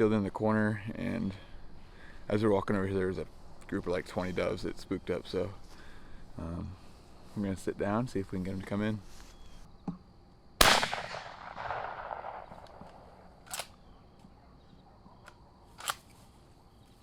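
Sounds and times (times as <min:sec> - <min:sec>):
faint sharp gunshot reports: 0:10.6 - 0:12.6
shotgun shot: 0:10.6 - 0:13.6.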